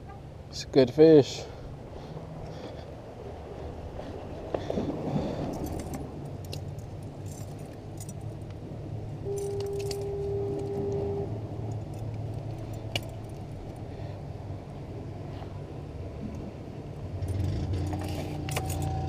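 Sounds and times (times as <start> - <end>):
metallic clinks and jingling: 5.5 - 8.4, 9.3 - 10.2, 17.8 - 19.0
horn-like tone: 9.2 - 11.4.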